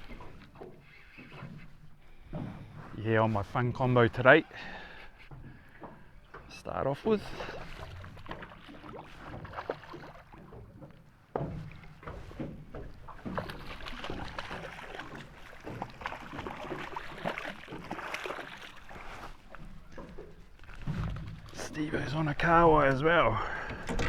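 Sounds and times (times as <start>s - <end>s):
water splashing against boat: 0.0s - 24.0s
knocks and clicks: 22.8s - 24.0s.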